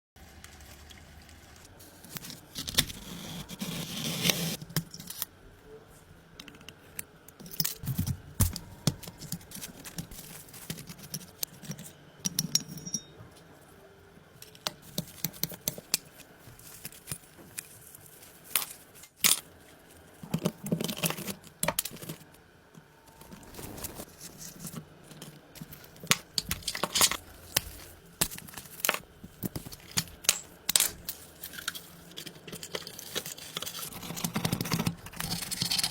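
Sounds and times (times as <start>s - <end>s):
small hard parts clicking and rattling: 6.4s - 13.5s, 24.1s - 35.9s.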